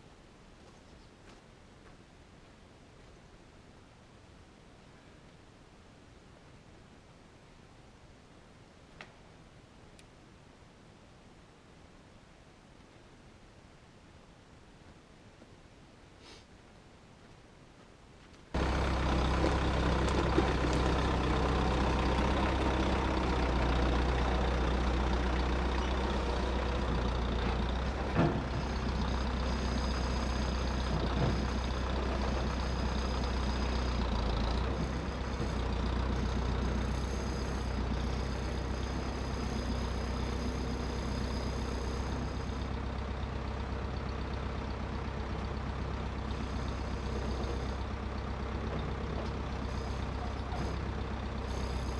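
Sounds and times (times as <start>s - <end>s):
heavy engine running: 18.6s - 51.9s.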